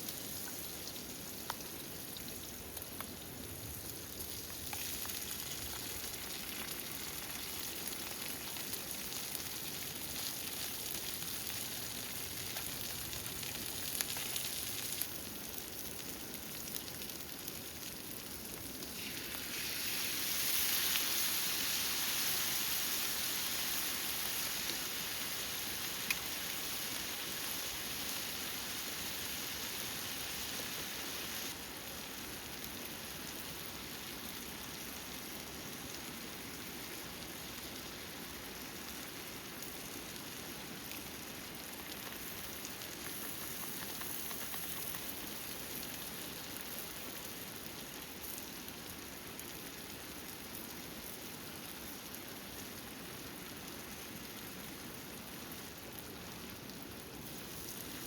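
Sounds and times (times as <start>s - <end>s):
steady rain: 0.0s - 58.0s
food sizzling in a pan: 18.8s - 31.5s.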